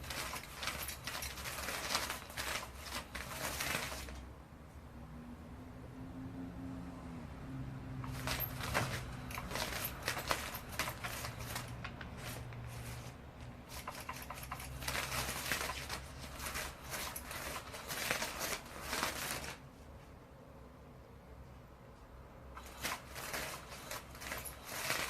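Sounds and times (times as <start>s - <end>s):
cat clawing at toy: 0.0s - 4.2s, 8.0s - 19.6s, 22.6s - 25.0s.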